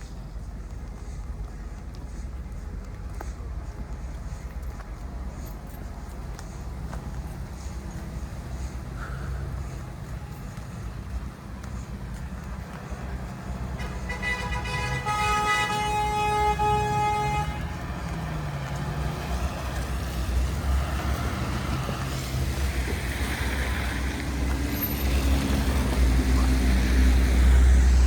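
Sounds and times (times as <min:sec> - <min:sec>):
engines rumbling: 0:00.0 - 0:28.0
vehicle horn blast: 0:13.8 - 0:17.7.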